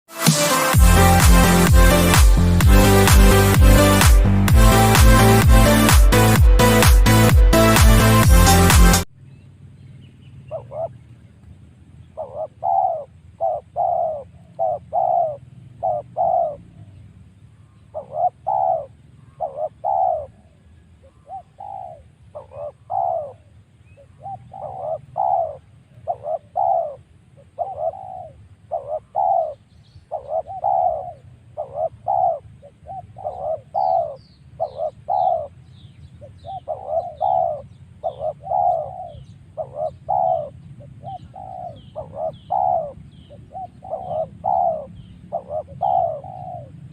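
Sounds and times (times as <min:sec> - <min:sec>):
dove cooing: 0:10.5 - 0:11.0, 0:12.1 - 0:17.0, 0:17.8 - 0:46.9
small bird chirping: 0:12.0 - 0:46.8.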